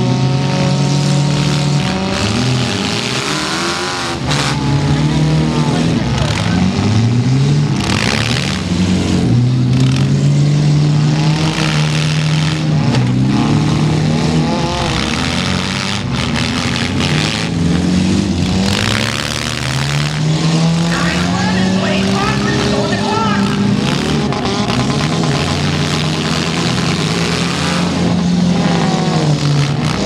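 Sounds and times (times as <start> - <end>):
car engines revving: 0.0 - 30.0.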